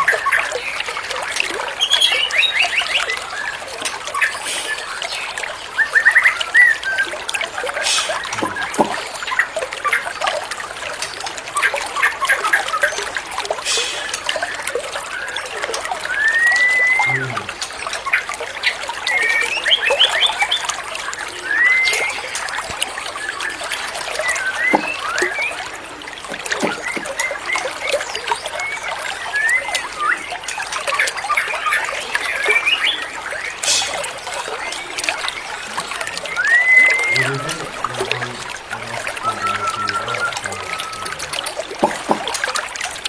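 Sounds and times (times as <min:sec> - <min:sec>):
water trickling and splashing: 0:00.0 - 0:43.0
bird chirps: 0:01.7 - 0:07.1, 0:07.8 - 0:10.0, 0:16.1 - 0:42.4
bird whistling: 0:01.8 - 0:03.6, 0:04.2 - 0:07.1, 0:07.8 - 0:09.4, 0:13.7 - 0:15.4, 0:16.0 - 0:17.7, 0:18.6 - 0:20.7, 0:21.3 - 0:22.6, 0:23.2 - 0:25.7, 0:26.3 - 0:27.6, 0:28.4 - 0:30.3, 0:31.7 - 0:38.2, 0:39.2 - 0:42.3.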